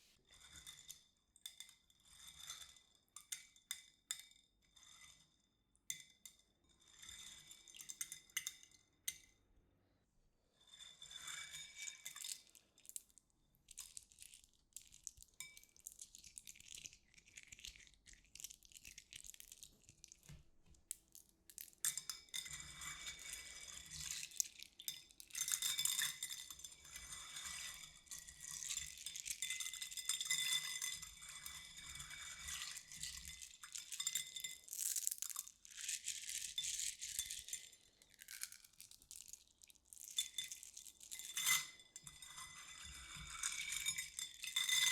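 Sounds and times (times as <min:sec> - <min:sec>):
small hard objects rattling and clinking: 0:13.7 - 0:20.3, 0:20.9 - 0:44.9.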